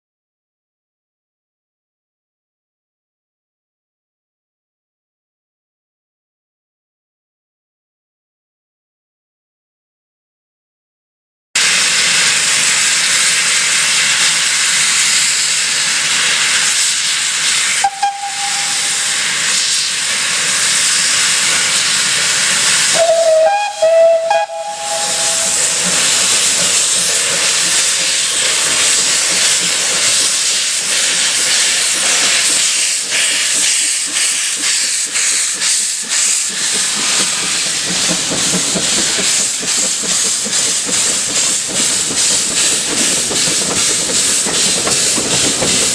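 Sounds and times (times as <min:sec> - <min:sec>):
steam locomotive hissing: 0:11.6 - 0:45.9
steam whistle: 0:17.7 - 0:19.1, 0:22.9 - 0:25.9.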